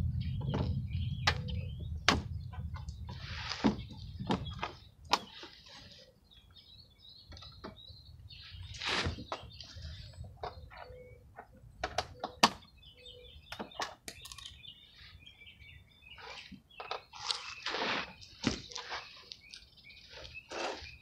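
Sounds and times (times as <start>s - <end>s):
low rumble: 0.0s - 3.2s
birds chirping: 0.0s - 21.0s.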